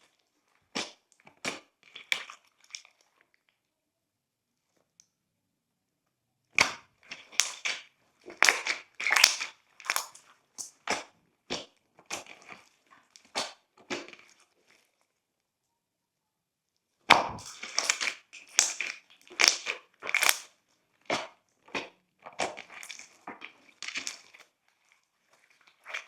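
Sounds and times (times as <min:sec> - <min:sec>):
slime squishing with bubble pops: 0:00.7 - 0:03.1, 0:06.6 - 0:14.6, 0:17.1 - 0:26.0.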